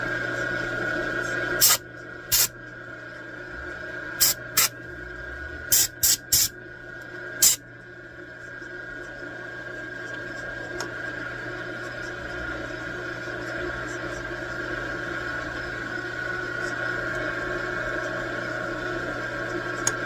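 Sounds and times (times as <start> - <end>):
shop machinery hum: 0.0 - 20.0
hissing spray spurts: 1.6 - 2.5, 4.2 - 4.7, 5.7 - 6.5.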